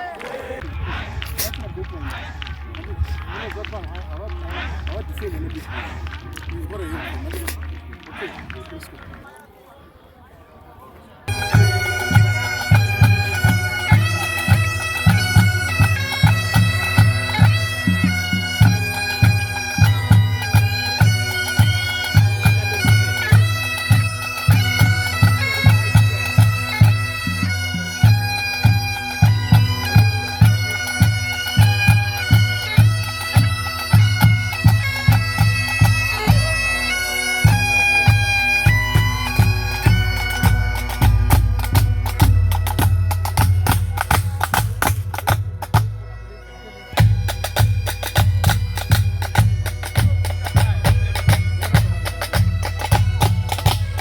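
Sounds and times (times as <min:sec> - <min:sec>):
steady drum beat: 0:11.3 - 0:46.0, 0:47.0 - 0:54.0
bagpipe melody with drones: 0:11.3 - 0:54.0.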